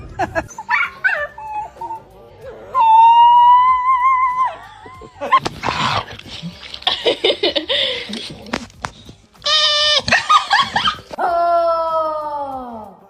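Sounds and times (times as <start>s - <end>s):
dog whining: 0.6s - 2.1s, 9.4s - 11.1s.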